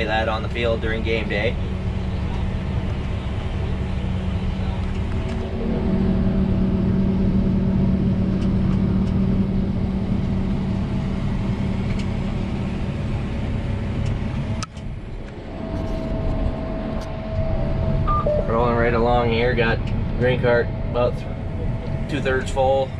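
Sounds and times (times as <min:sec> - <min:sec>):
harvester engine drone: 0:00.0 - 0:22.9.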